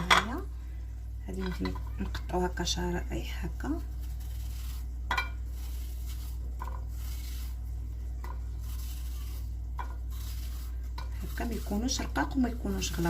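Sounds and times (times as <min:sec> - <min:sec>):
steady low hum: 0:00.0 - 0:13.0
knife cutting apple: 0:08.3 - 0:13.0.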